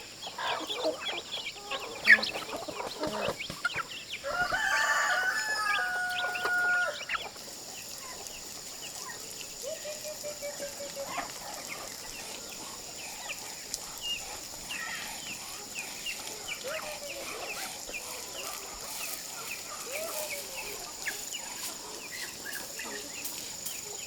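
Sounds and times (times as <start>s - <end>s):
chickens clucking: 0.0s - 24.0s
rooster crowing: 4.2s - 7.2s.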